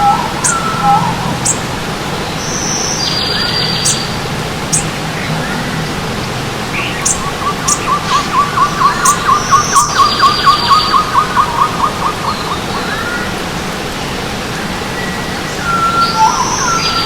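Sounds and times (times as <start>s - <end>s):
bird calling repeated notes: 0.0s - 1.6s, 6.7s - 12.4s
higher bird chirps: 0.0s - 12.8s
stream water rushing: 0.0s - 17.0s.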